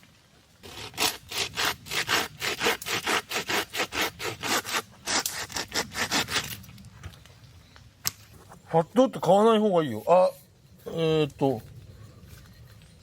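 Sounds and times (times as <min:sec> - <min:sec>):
hand saw cutting wood: 0:00.6 - 0:06.6.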